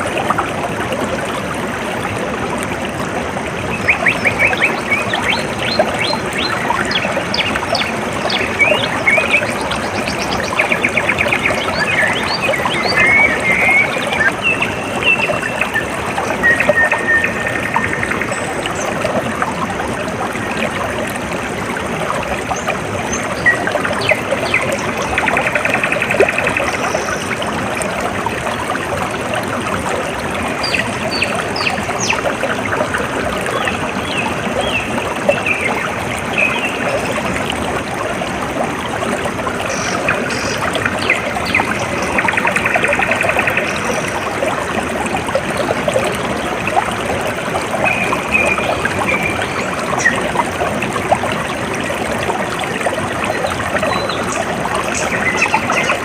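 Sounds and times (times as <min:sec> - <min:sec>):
water trickling and splashing: 0:00.0 - 0:56.0
birds chirping and trilling: 0:03.7 - 0:18.6.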